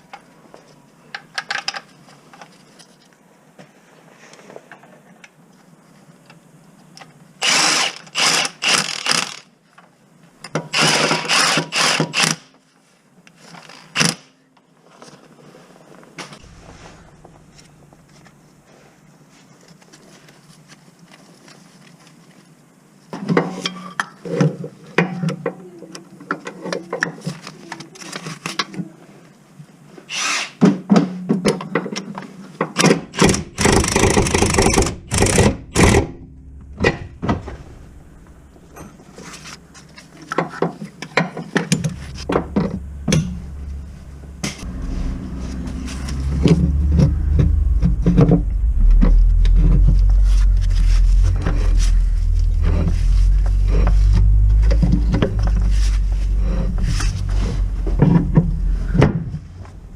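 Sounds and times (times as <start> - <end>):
low rumble: 16.4 - 18.2, 35.0 - 39.8, 41.7 - 59.9.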